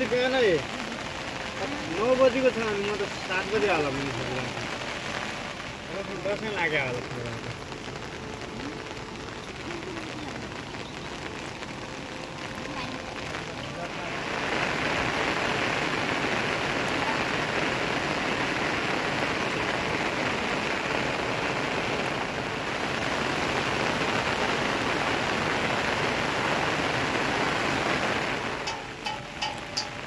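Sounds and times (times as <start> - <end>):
steady rain falling: 0.0 - 30.0
sharp clinking taps: 28.7 - 30.0.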